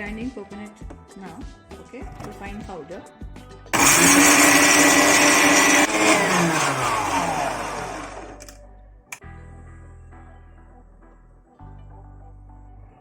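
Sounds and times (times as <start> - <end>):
mixer grinder whirring: 3.8 - 8.5.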